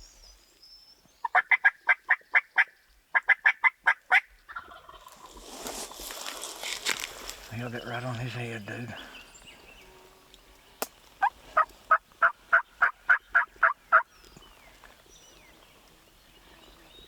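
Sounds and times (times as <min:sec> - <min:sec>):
turkey yelping: 0:01.3 - 0:05.1, 0:11.2 - 0:14.1.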